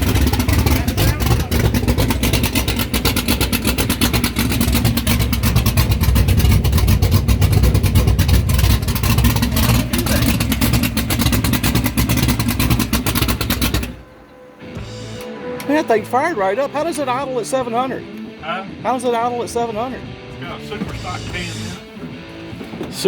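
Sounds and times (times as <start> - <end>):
car engine choppy idle: 0.0 - 15.2.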